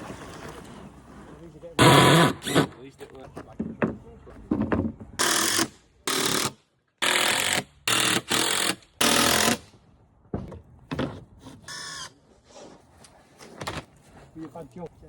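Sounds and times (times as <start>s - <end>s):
power tool bursts: 1.8s - 2.7s.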